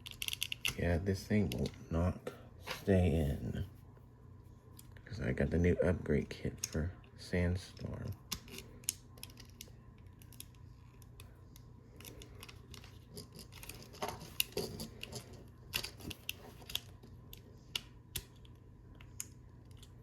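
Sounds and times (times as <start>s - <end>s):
plastic parts clicking and scraping: 0.0s - 0.8s, 7.8s - 20.0s.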